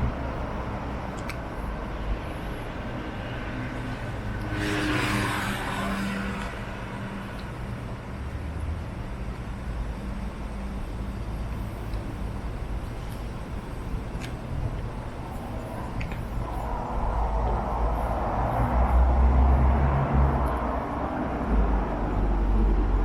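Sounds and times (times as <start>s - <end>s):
low hum of traffic: 0.0s - 23.0s
car passing close by: 3.0s - 7.4s, 16.6s - 23.0s.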